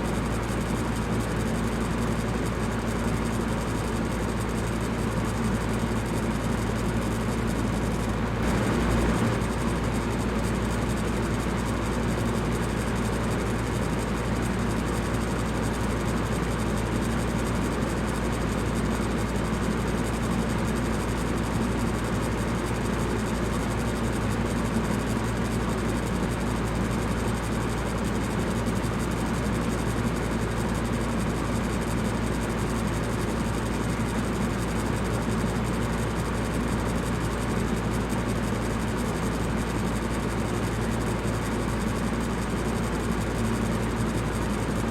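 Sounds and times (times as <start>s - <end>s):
electric fan whooshing: 8.2s - 10.8s.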